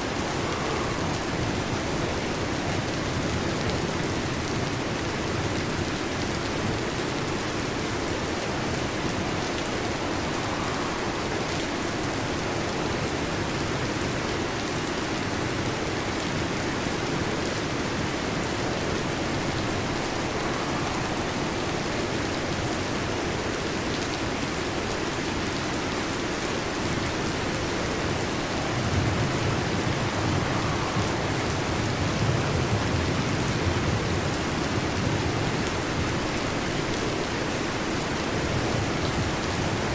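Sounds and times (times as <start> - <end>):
heavy rain on a metal roof: 0.0 - 39.9
low rumble of thunder: 16.3 - 23.6, 27.0 - 36.7.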